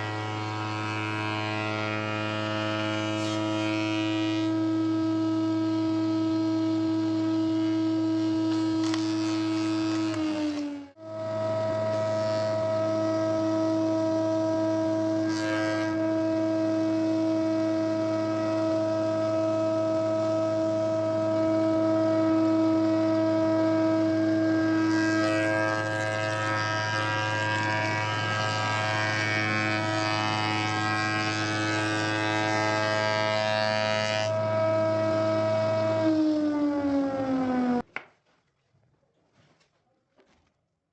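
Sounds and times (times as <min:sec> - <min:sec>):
power tool motor running: 0:00.0 - 0:37.8
cutter scraping wood: 0:07.6 - 0:10.9, 0:24.8 - 0:36.2.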